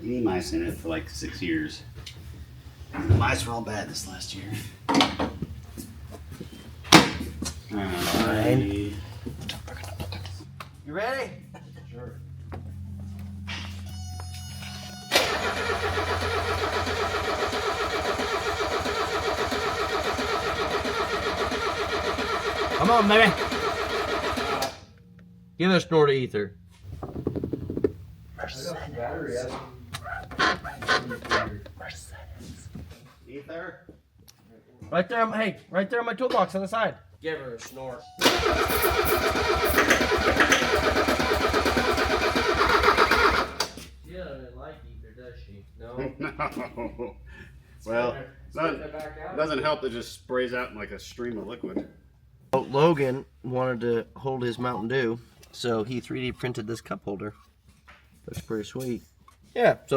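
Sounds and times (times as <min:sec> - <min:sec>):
starter cranking diesel engine: 0:15.1 - 0:24.8, 0:38.2 - 0:43.8.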